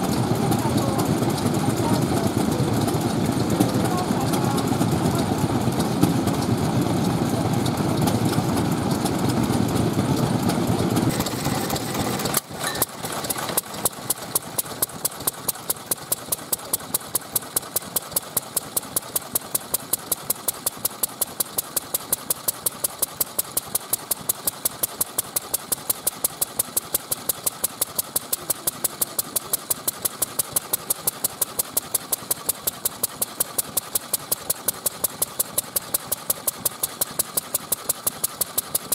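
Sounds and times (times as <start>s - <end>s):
loud dense rumble: 0.0s - 12.3s
stationary engine popping: 0.0s - 38.9s.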